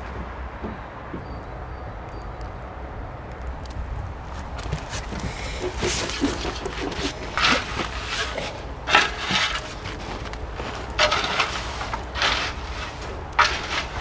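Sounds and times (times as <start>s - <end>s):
scrapes and rustles in garden bed: 4.2s - 14.0s.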